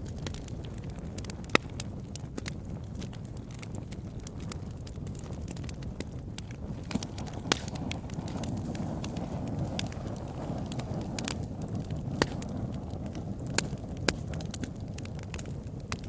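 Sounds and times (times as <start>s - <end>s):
fire crackling and popping: 0.0s - 16.0s
flames rumbling: 0.0s - 16.0s.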